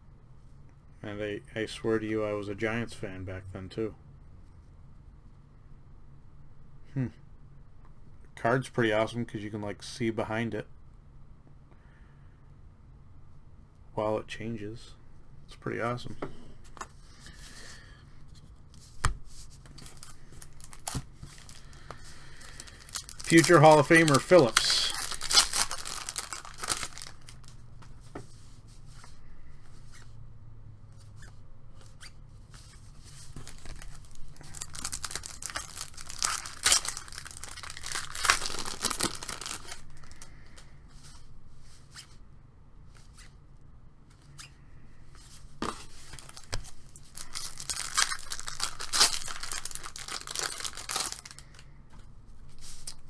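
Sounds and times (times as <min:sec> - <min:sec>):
cards being handled: 0:16.0 - 0:29.2, 0:33.0 - 0:41.2, 0:45.2 - 0:53.0
wrapper tearing and crinkling: 0:19.7 - 0:27.6, 0:33.3 - 0:40.3, 0:46.1 - 0:51.6.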